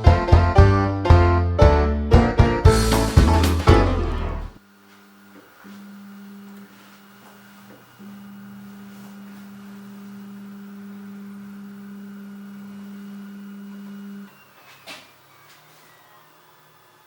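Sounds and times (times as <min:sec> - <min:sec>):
printer humming: 0:02.8 - 0:04.6.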